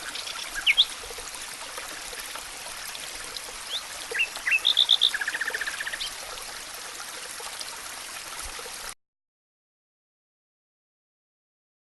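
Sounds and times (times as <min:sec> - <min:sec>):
songbird singing: 0:00.0 - 0:01.0, 0:03.6 - 0:06.2
stream running: 0:00.0 - 0:09.0.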